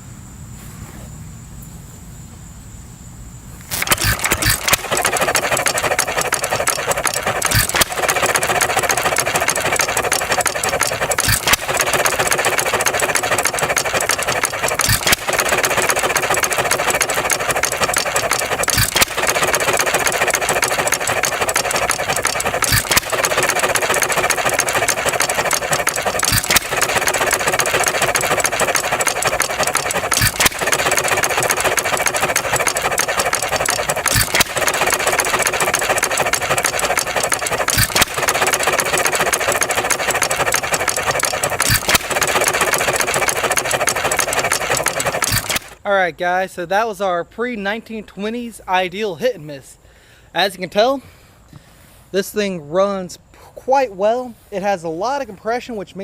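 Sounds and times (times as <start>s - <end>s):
crickets chirping: 0.0s - 7.7s
hit-and-miss engine running: 3.6s - 45.8s.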